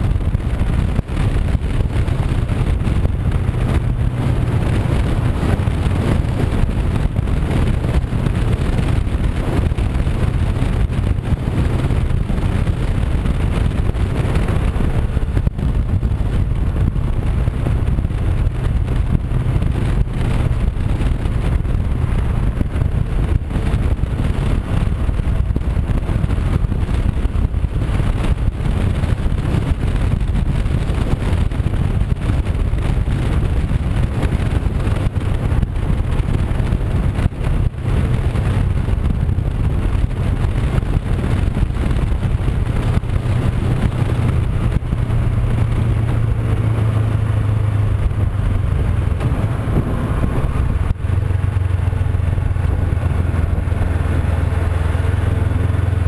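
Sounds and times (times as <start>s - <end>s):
motorcycle engine cruising: 0.0s - 56.0s
wind rush on microphone: 0.0s - 56.0s.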